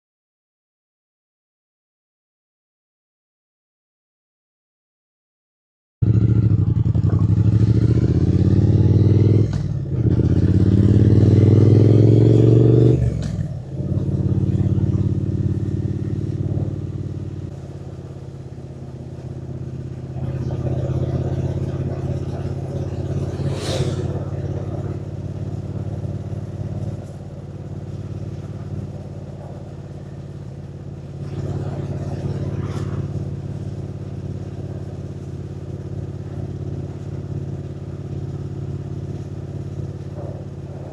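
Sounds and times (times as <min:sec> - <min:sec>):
motorcycle engine revving: 0:06.0 - 0:40.9
road and wind noise: 0:06.0 - 0:40.9
brief sharp noise: 0:23.0 - 0:24.3.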